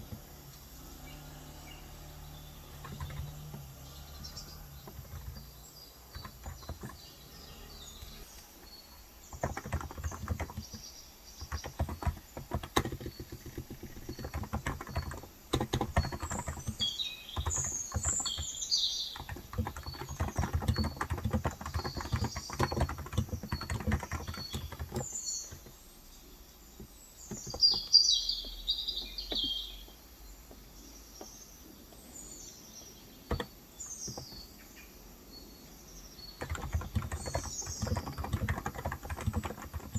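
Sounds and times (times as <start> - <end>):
keyboard typing: 0.0 - 25.8, 26.8 - 28.0, 33.3 - 34.5, 36.4 - 39.9
birds chirping: 0.0 - 39.9.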